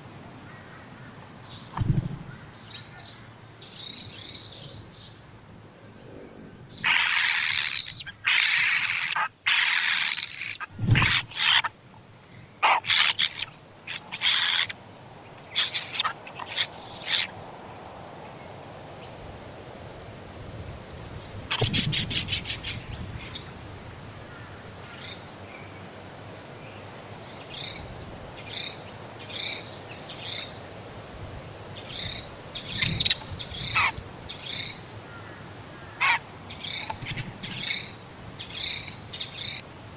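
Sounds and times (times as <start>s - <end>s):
nestling birds begging calls: 6.7s - 17.6s, 21.0s - 23.5s, 31.8s - 39.7s.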